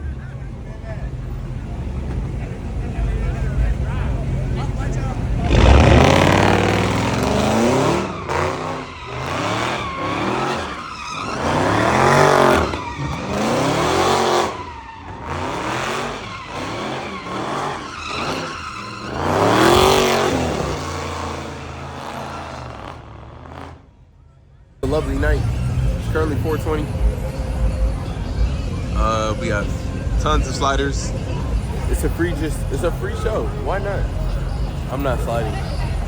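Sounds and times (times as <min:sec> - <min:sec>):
car engines revving: 0:00.0 - 0:36.0
tyre squeal: 0:05.4 - 0:23.7.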